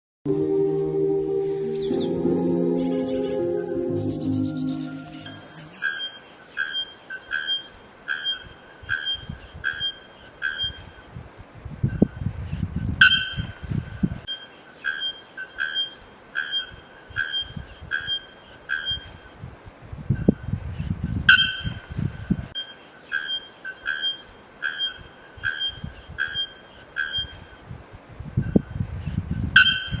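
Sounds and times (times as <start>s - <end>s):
bird piping notes: 0.4s - 10.8s.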